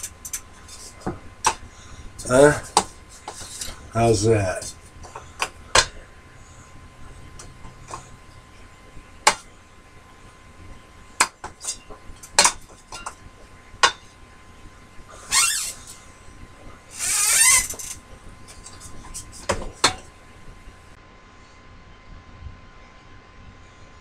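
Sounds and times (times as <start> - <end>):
metal tools clicking and clinking: 0.0 - 1.1.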